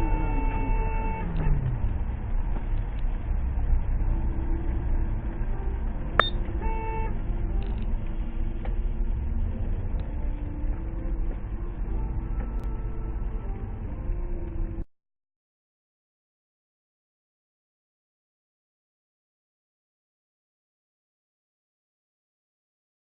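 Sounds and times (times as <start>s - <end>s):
car horn: 0.0s - 1.8s, 6.2s - 7.8s, 11.9s - 13.8s
vehicle and road rumble: 0.0s - 14.9s.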